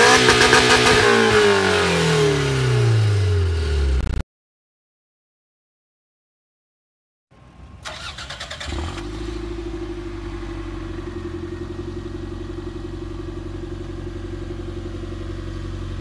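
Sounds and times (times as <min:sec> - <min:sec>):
car engine idling: 0:07.4 - 0:16.0.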